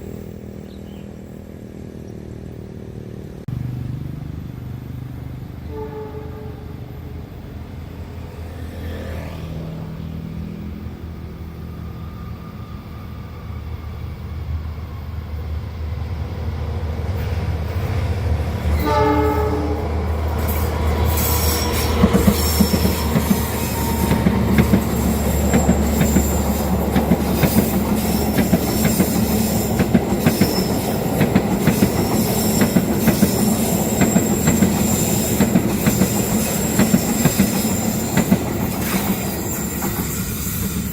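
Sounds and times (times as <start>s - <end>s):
train rumble: 0.0s - 40.9s
train horn blast: 5.6s - 7.2s, 18.7s - 20.2s, 21.0s - 26.8s
high wheel squeal: 18.8s - 40.9s
wheels clattering over rail joints: 20.2s - 40.9s.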